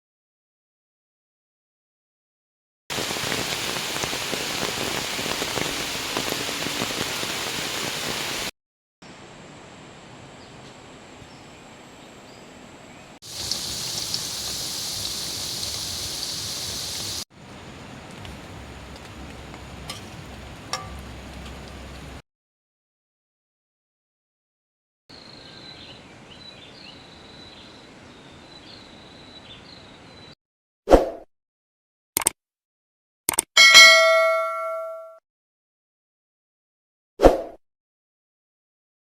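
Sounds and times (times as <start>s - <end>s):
heavy rain falling: 2.9s - 8.5s, 13.2s - 22.2s.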